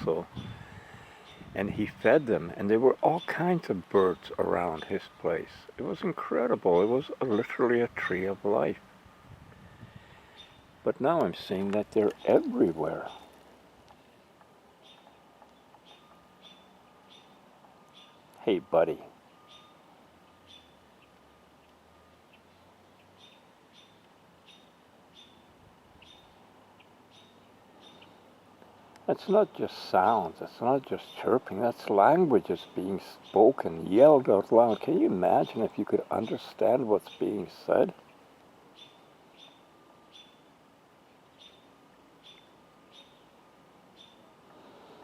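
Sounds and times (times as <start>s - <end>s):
songbird chip notes: 0.0s - 40.5s
bird chirping faintly: 5.9s - 14.2s, 14.8s - 28.4s, 32.5s - 44.4s.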